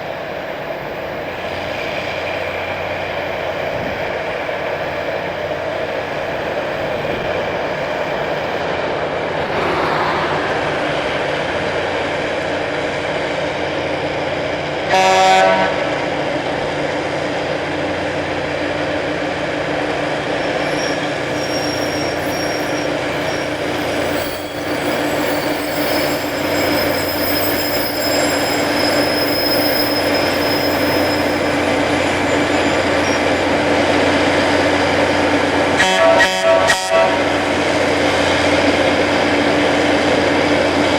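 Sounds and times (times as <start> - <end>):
rail grinding noise: 0.0 - 40.9
diesel engines humming: 0.1 - 40.9
train horn blast: 14.8 - 16.0, 35.7 - 37.4.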